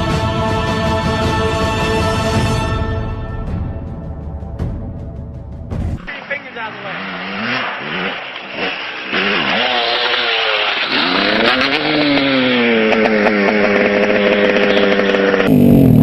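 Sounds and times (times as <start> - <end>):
motocross bike engine revving: 6.1 - 16.0.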